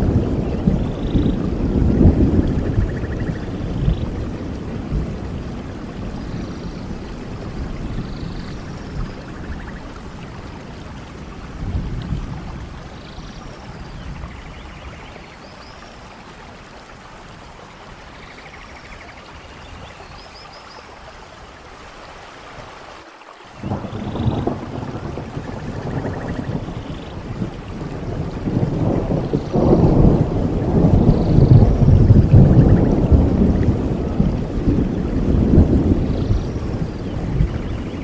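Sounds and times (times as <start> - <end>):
rolling thunder: 0.0 - 12.9, 23.6 - 38.0
heavy rain: 0.0 - 38.0.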